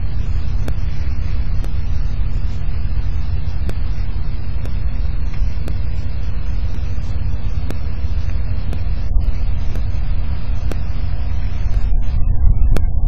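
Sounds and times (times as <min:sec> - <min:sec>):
faint sharp clicks: 0:00.3 - 0:11.0, 0:11.6 - 0:12.0.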